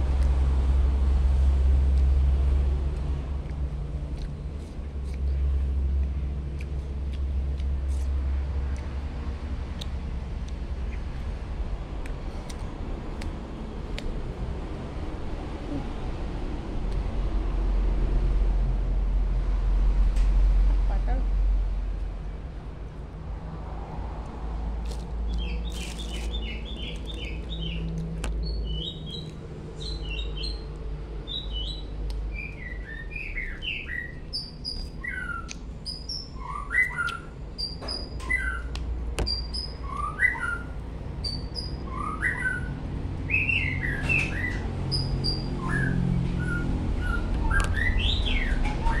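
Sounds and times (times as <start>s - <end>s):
steady low rumble: 0.0s - 36.4s
small birds chirping: 24.9s - 49.0s.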